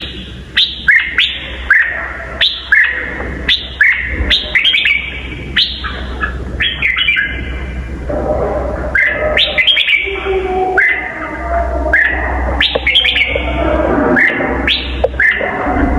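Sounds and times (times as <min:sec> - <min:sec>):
steady low hum: 0:00.0 - 0:15.9
bird singing whistled notes: 0:00.6 - 0:05.9, 0:06.6 - 0:07.4, 0:09.0 - 0:10.1, 0:10.8 - 0:11.1, 0:11.9 - 0:13.5.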